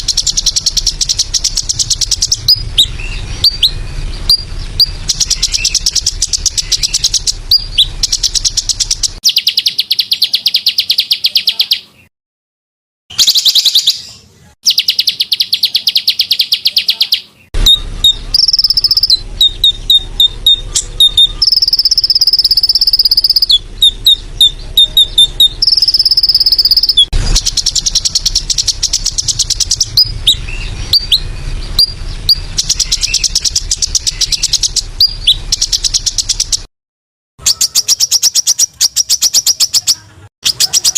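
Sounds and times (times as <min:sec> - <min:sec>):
high-pitched buzzing bird trills: 0:00.0 - 0:11.9, 0:14.7 - 0:36.7, 0:37.4 - 0:40.9
whistled bird notes: 0:00.0 - 0:12.1, 0:13.1 - 0:36.7, 0:37.4 - 0:40.9.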